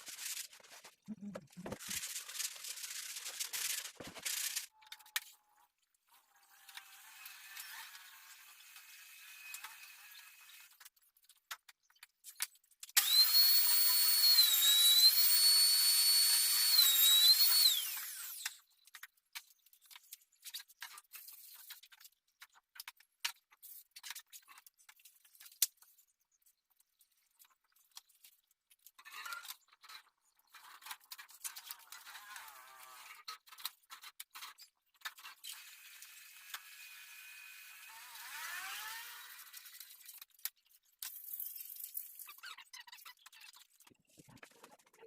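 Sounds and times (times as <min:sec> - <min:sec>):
power tool whining: 0:13.0 - 0:18.6, 0:36.0 - 0:39.6.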